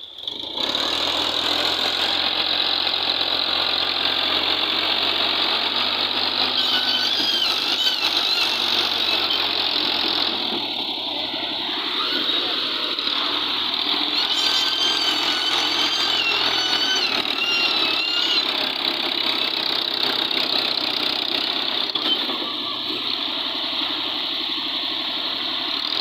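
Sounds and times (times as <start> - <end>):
diesel tractor engines running: 0.0 - 26.0
wavering high whistle: 6.5 - 9.6, 14.1 - 18.6.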